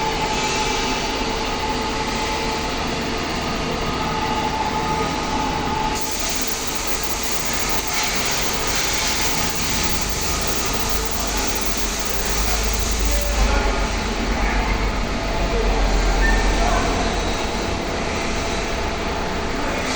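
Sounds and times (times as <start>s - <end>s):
industrial machinery rumble and hiss: 0.0s - 19.9s.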